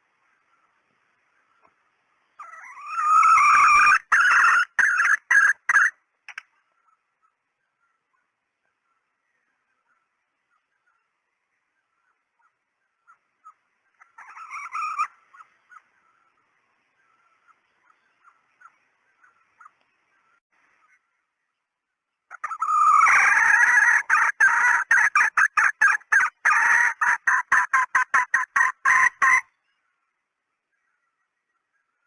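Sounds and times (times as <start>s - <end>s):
hen clucking and cackling: 2.3s - 7.0s, 12.4s - 16.2s, 22.3s - 29.6s.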